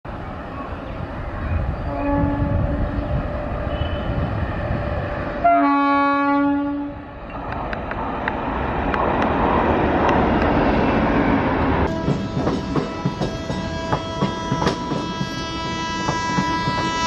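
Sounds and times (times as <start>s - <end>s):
train rumble: 0.1s - 17.0s
train horn blast: 1.8s - 4.2s, 5.4s - 7.0s, 11.9s - 17.0s.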